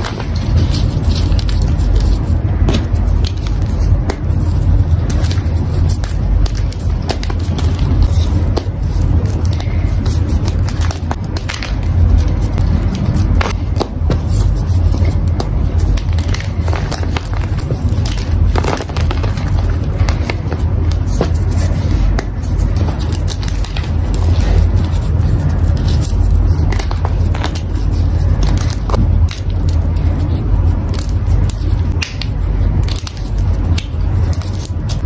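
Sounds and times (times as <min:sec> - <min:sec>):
low rumble: 0:00.0 - 0:34.5
chalk being crushed by hand: 0:00.0 - 0:35.0.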